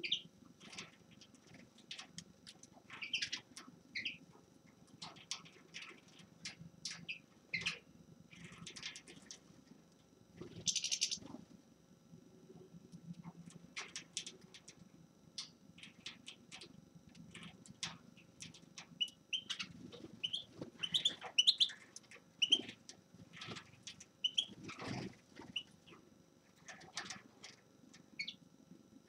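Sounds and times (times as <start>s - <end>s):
finch chirping: 0.0s - 0.9s, 2.9s - 3.4s, 4.0s - 4.2s, 10.6s - 11.2s, 18.4s - 21.8s, 22.4s - 22.8s, 24.2s - 24.6s, 28.2s - 28.4s.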